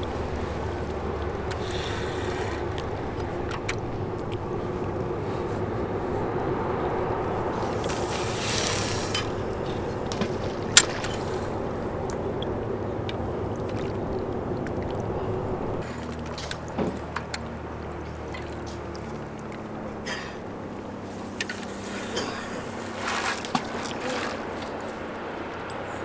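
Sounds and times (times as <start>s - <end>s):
boat engine droning: 0.0s - 26.0s
brief hiss: 7.8s - 9.4s, 21.4s - 23.5s.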